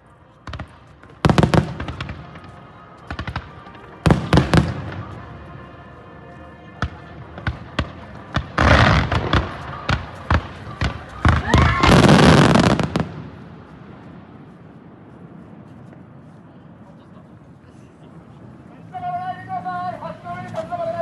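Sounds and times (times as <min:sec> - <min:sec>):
fireworks crackling: 0:00.0 - 0:05.6, 0:06.8 - 0:21.0
fireworks bursting with bangs: 0:00.4 - 0:05.3, 0:06.8 - 0:14.4.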